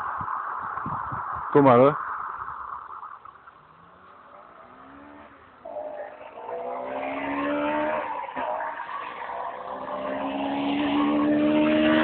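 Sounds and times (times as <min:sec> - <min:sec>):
car engine accelerating hard: 0:03.6 - 0:12.0.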